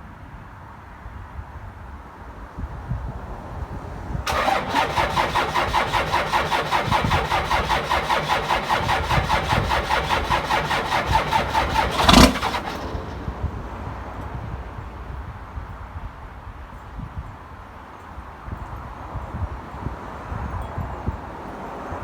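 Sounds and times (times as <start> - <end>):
diesel engine cranking: 4.3 - 14.2.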